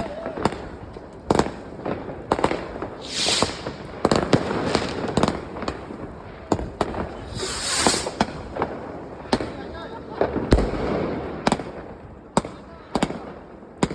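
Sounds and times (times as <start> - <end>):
firecracker bangs and cracks: 0.0 - 13.9
hissing firework bursts: 0.1 - 9.7.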